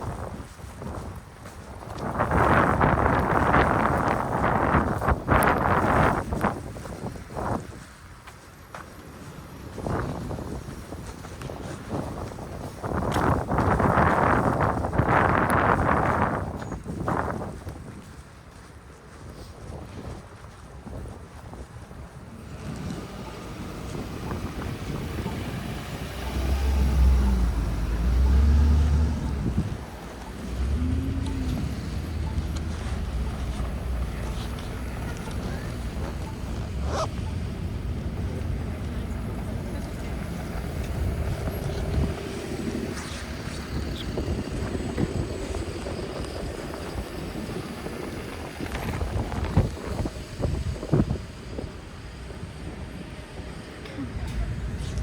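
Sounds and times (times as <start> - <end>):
wind noise on microphone: 0.0 - 55.0
vehicle engine rumble passing: 22.2 - 55.0.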